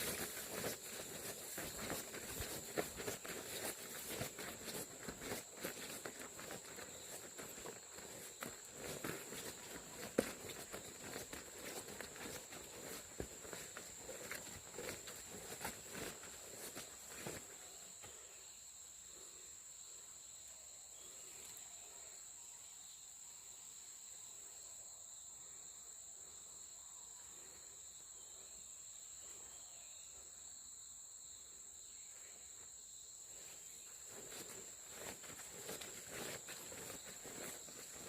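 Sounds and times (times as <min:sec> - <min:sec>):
footsteps on dirt path: 0:00.0 - 0:18.3, 0:33.5 - 0:38.0.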